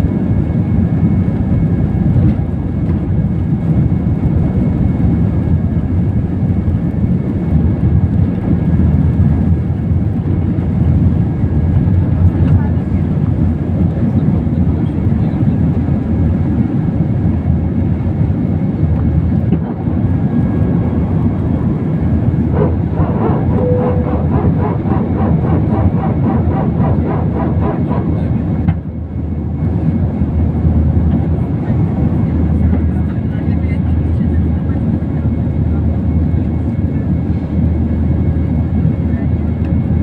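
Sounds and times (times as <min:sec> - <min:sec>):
jet engines rumbling: 0:00.0 - 0:40.0
regular pulsing: 0:19.7 - 0:28.7.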